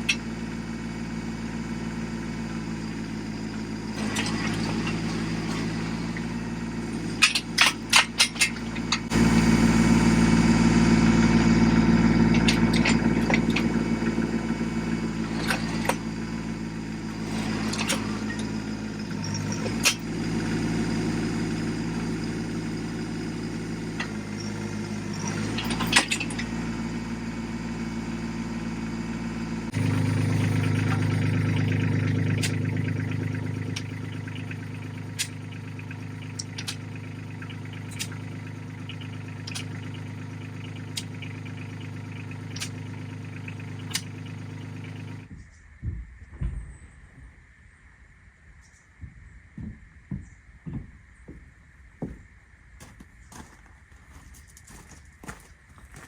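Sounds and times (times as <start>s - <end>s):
tractor engine running: 0.0s - 46.9s, 49.0s - 56.0s
sharp clanks: 3.6s - 9.7s, 10.3s - 20.6s, 22.0s - 26.8s, 29.7s - 45.0s.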